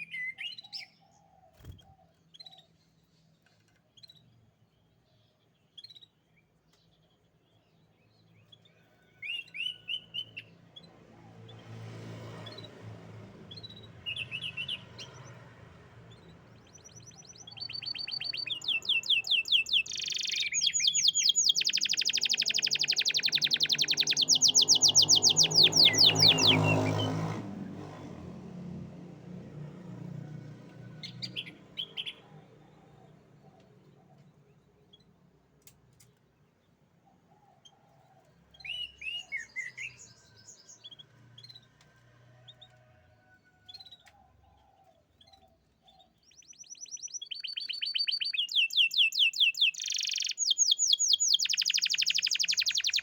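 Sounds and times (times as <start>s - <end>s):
canary chirps: 0.0s - 27.9s, 31.0s - 53.0s
canary singing trills: 7.9s - 11.6s, 13.4s - 15.4s, 16.0s - 27.4s, 31.0s - 35.2s, 38.5s - 41.7s, 43.7s - 53.0s.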